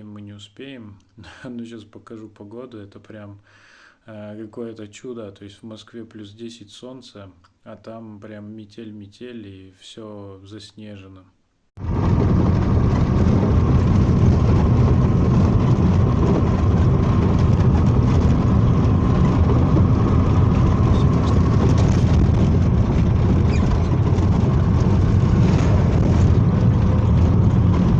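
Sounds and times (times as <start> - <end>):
vehicle engine and road noise: 11.8 - 27.9.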